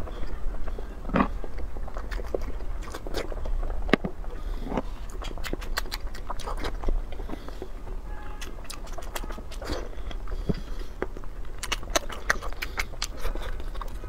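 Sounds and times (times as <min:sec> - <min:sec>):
crunchy chewing: 0:00.0 - 0:14.0
low steady hum: 0:00.0 - 0:14.0.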